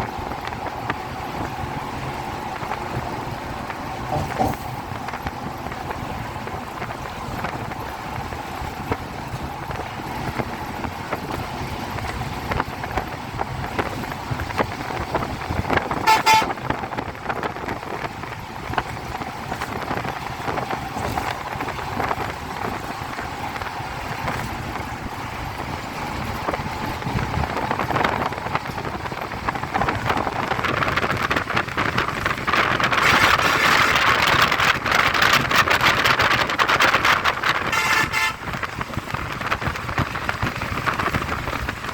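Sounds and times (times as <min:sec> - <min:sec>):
road traffic noise: 0:00.0 - 0:41.9
vehicle horn toot: 0:16.0 - 0:16.6, 0:33.0 - 0:33.6, 0:37.6 - 0:38.6.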